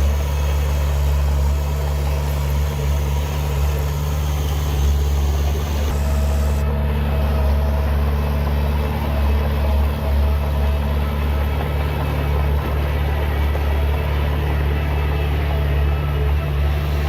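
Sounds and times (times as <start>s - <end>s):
heavy diesel engine humming: 0.0s - 17.0s.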